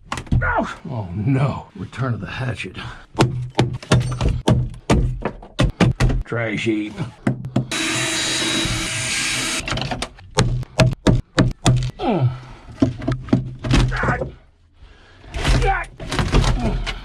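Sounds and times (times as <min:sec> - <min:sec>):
hatchet knocks and wood cracks: 0:03.2 - 0:06.2, 0:09.8 - 0:11.9.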